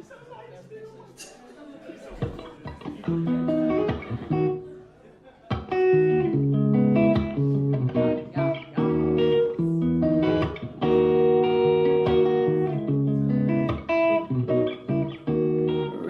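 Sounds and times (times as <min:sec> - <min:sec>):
guitar playing ringing chords: 0:02.6 - 0:04.7, 0:05.5 - 0:16.0.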